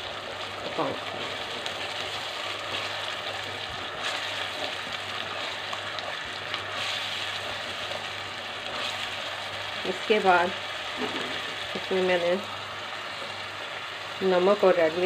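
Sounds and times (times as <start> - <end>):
spatula stirring pot: 0.0 - 9.6
paste sizzling in hot oil: 0.0 - 15.0.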